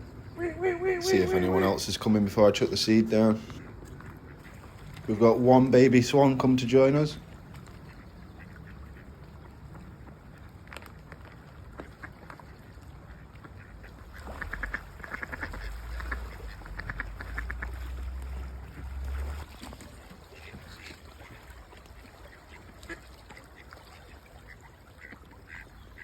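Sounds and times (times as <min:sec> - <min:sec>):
ducks quacking: 0:00.2 - 0:07.2, 0:13.1 - 0:19.5, 0:20.2 - 0:26.0.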